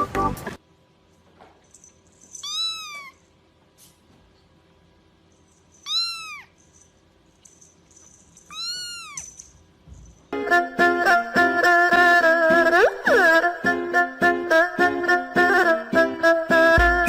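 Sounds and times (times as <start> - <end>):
music: 0.0 - 0.6, 10.3 - 17.0
cat meowing: 2.4 - 3.2, 5.8 - 6.6, 8.5 - 9.3.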